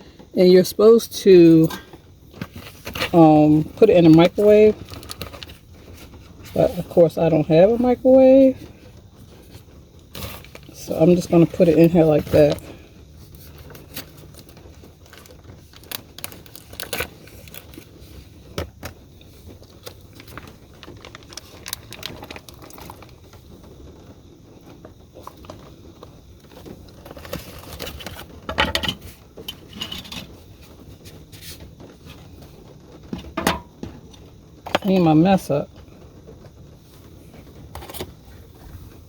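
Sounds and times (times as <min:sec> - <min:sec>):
plastic packaging crinkling and tearing: 0:02.3 - 0:06.8, 0:09.2 - 0:23.8, 0:24.8 - 0:30.4
clicks and knocks: 0:33.1 - 0:34.0.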